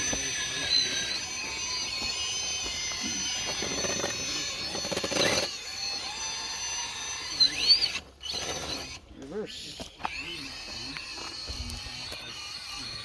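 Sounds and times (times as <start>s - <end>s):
tyres scrabbling on rock: 0.0s - 9.0s
rc car motor whining: 0.0s - 13.0s.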